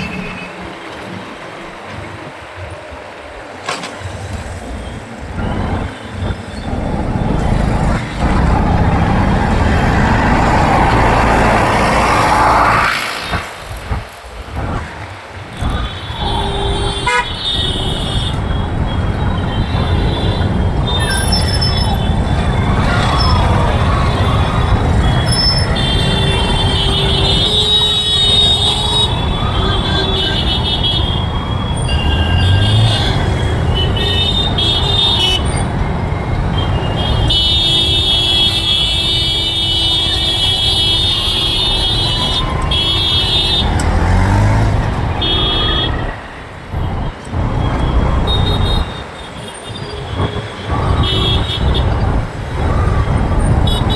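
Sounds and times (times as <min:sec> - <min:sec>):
engine and road noise rumble: 0:00.0 - 0:53.9
vehicle horns honking: 0:15.7 - 0:23.3, 0:23.9 - 0:35.7, 0:36.6 - 0:46.2, 0:48.1 - 0:52.1.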